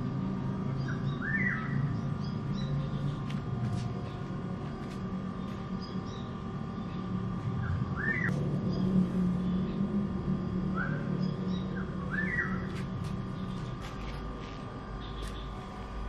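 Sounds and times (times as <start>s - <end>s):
steady low hum: 0.0s - 16.0s
bird whistling rising notes: 8.0s - 8.3s, 12.1s - 12.7s.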